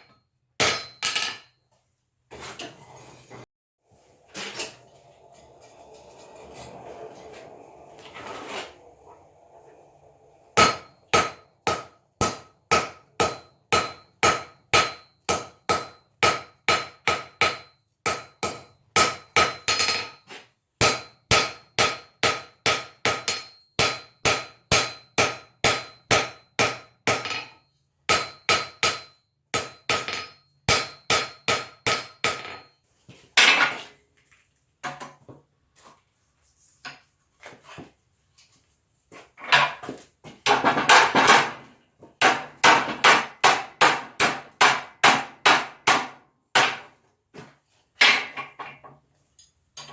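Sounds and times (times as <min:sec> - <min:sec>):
hammer striking steel on anvil: 0:00.0 - 0:01.5, 0:10.6 - 0:20.2, 0:20.8 - 0:32.7, 0:42.2 - 0:46.8.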